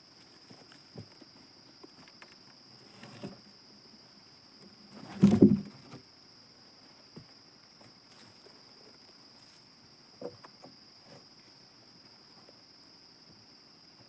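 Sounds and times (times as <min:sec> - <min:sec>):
heavy double thud: 0:05.0 - 0:05.8.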